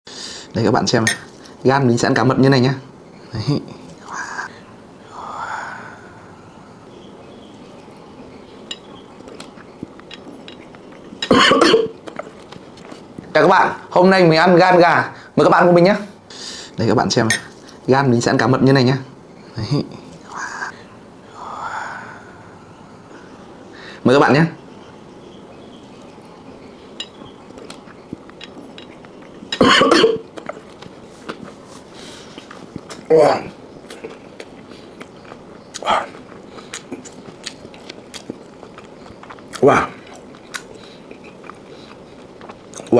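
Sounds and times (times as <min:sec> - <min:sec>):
breathy exhale: 0:04.1 - 0:06.4, 0:20.4 - 0:24.0
soft chewing: 0:06.9 - 0:13.4, 0:25.2 - 0:29.6, 0:30.2 - 0:42.9.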